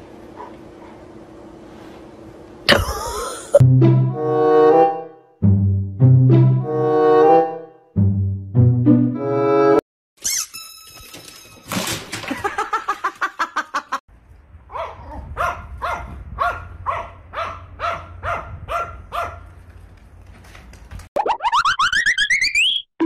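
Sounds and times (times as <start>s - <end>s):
small dog barking: 0.3s - 1.0s, 14.7s - 19.5s
low wind rumble: 14.2s - 19.6s
rising whistle sound effect: 21.2s - 22.9s.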